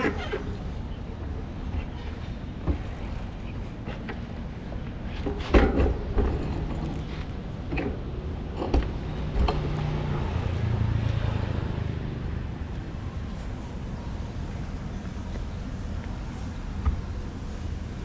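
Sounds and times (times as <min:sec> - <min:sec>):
low engine hum: 0:00.0 - 0:18.0
low road rumble: 0:00.0 - 0:18.0.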